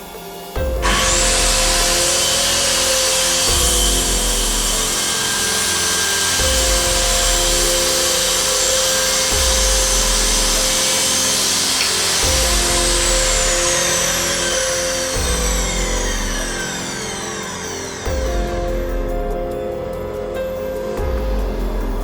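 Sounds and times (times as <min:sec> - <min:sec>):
background music with low beat: 0:00.0 - 0:22.0
circular saw cutting wood: 0:00.0 - 0:22.0.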